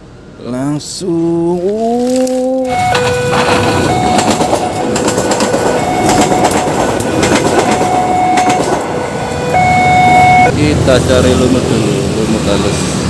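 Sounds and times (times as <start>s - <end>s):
clacks over rail joints: 1.7s - 9.0s
two-tone crossing alarm: 2.7s - 10.5s
train passing on rails: 2.7s - 13.0s.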